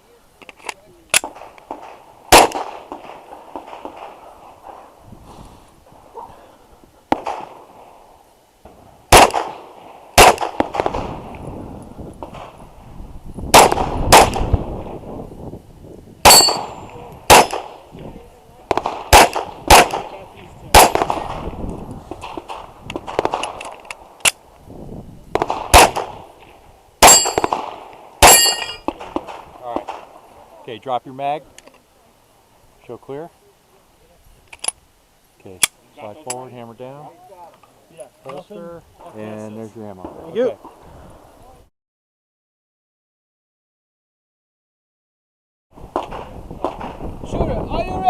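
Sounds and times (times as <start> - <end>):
pistol shots: 1.2 - 4.1, 7.1 - 7.6, 9.1 - 11.2, 13.5 - 14.5, 16.2 - 17.8, 18.7 - 20.1, 20.7 - 21.4, 25.3 - 26.2, 27.0 - 30.1
steel targets clanging: 16.3 - 17.6, 27.0 - 27.6, 28.2 - 28.9.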